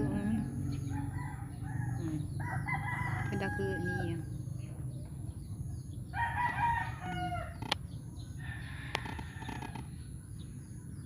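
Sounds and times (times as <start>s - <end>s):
rooster crowing: 0.0s - 4.3s, 6.1s - 7.8s, 8.4s - 9.9s.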